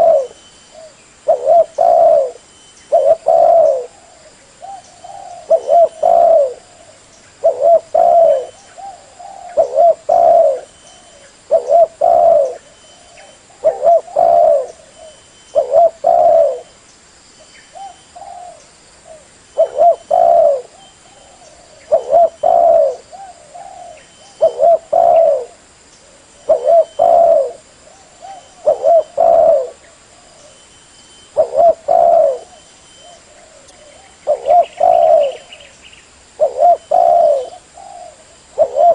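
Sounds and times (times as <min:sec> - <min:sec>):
dove cooing: 0:00.0 - 0:16.7, 0:17.7 - 0:30.6, 0:31.3 - 0:35.7, 0:36.3 - 0:38.9.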